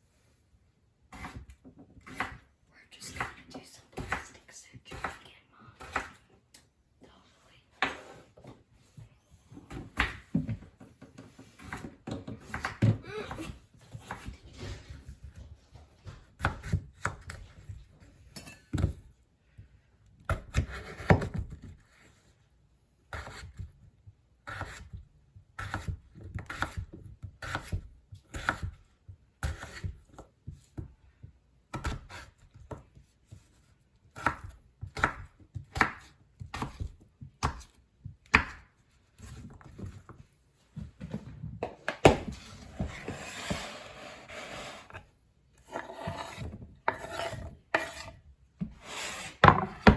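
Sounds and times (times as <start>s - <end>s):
knife chopping on cutting board: 1.1s - 2.4s, 4.0s - 4.2s, 4.9s - 5.2s, 5.8s - 6.2s, 11.4s - 14.3s, 16.3s - 17.4s, 20.3s - 21.8s, 23.1s - 23.7s, 24.5s - 25.0s, 25.6s - 28.8s, 29.4s - 30.9s, 31.7s - 33.5s, 34.2s - 40.0s, 45.6s - 49.9s
rough scraping: 42.4s - 45.0s.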